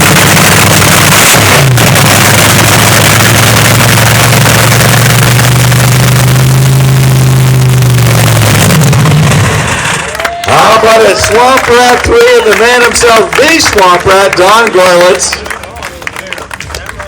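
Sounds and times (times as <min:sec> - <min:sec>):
dragster engine idling: 0:00.0 - 0:16.6.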